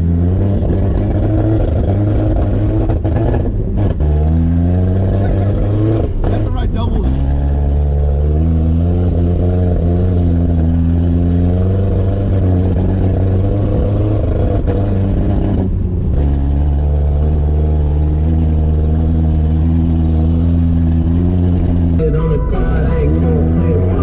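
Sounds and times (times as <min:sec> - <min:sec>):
truck engine running: 0:14.0 - 0:24.0.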